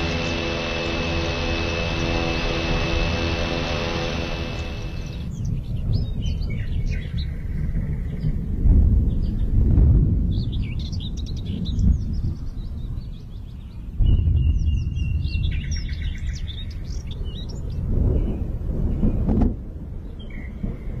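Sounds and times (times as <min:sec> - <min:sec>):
low rumble: 0:00.0 - 0:06.4
small birds chirping: 0:00.0 - 0:08.4.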